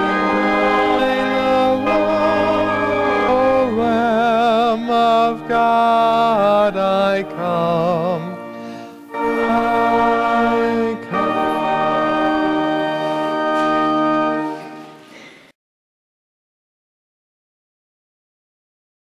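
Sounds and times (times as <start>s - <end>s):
hymn melody with vibrato: 0.0s - 15.1s
sustained accompaniment chords: 0.0s - 15.1s.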